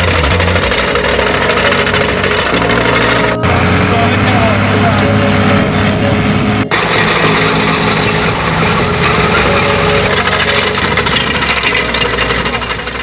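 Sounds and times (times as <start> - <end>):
metallic clatter and rattle: 0.0 - 3.4, 6.7 - 13.0
tractor diesel engine running: 0.0 - 13.0.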